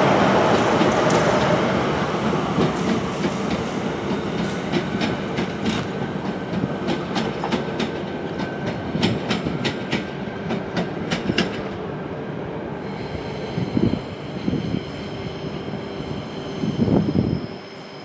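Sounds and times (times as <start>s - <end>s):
train wheels clicking over rails: 0.2s - 11.8s.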